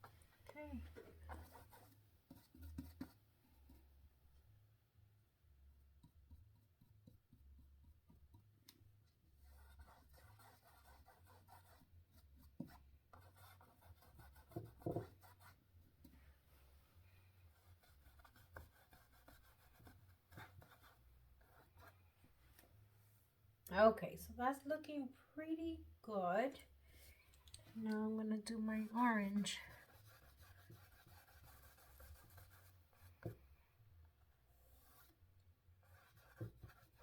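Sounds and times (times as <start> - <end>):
brush strokes on canvas: 28.8 - 33.5, 34.4 - 35.2.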